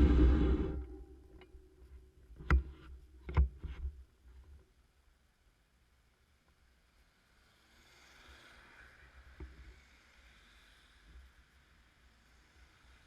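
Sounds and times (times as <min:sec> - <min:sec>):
faint hiss: 0:04.2 - 0:13.0.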